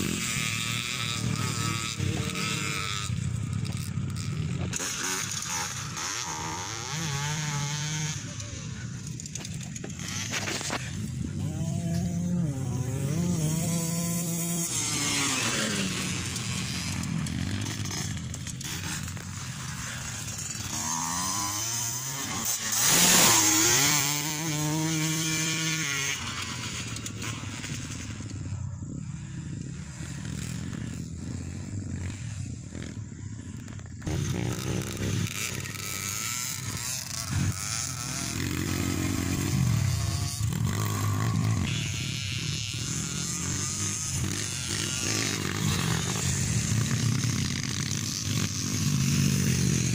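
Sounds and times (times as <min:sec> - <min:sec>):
motocross bikes revving: 0:00.0 - 0:49.9.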